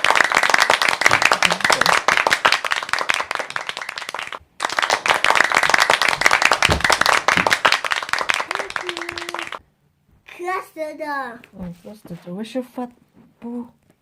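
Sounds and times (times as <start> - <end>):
rapid clapping: 0.0 - 9.6.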